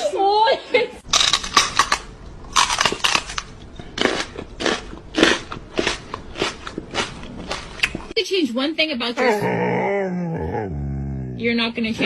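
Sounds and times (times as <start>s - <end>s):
crunching noises: 1.0s - 8.2s.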